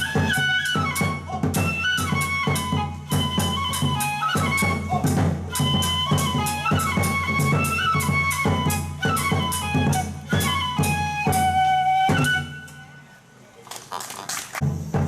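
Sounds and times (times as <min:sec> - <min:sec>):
bamboo flute melody: 0:00.0 - 0:13.4
drum beat: 0:00.2 - 0:11.5.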